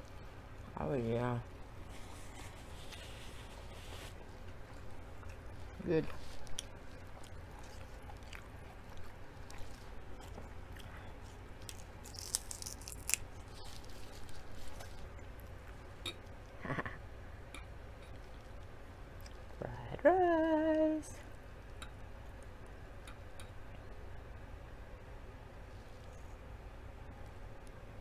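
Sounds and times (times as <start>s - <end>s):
soft chewing: 1.4s - 19.6s, 25.6s - 27.8s
lettuce leaf crunch: 5.7s - 15.4s.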